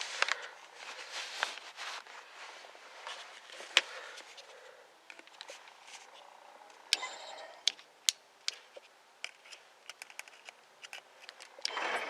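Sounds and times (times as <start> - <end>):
handling clicks and rustling: 7.6 - 11.8.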